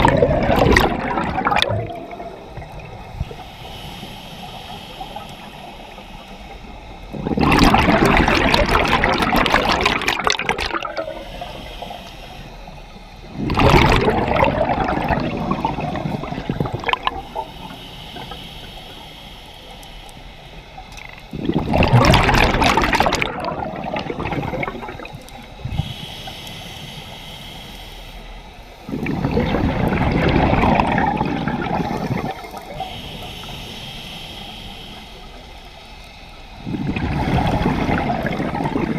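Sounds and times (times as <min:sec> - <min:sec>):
diver exhaling bubbles underwater: 0:00.0 - 0:03.3, 0:07.1 - 0:11.3, 0:13.3 - 0:17.4, 0:21.3 - 0:25.8, 0:28.9 - 0:32.8, 0:36.6 - 0:38.9.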